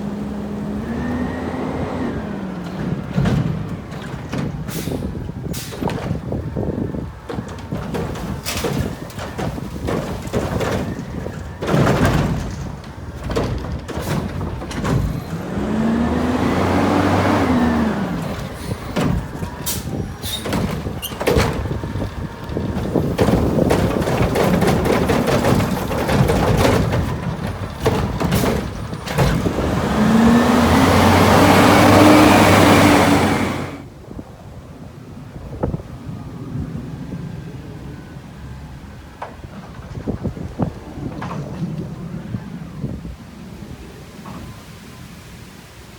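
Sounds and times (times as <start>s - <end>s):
garbage truck engine revving: 0.0s - 33.9s
cart bangs and clatter: 2.2s - 33.8s
hydraulic whine: 27.9s - 33.9s.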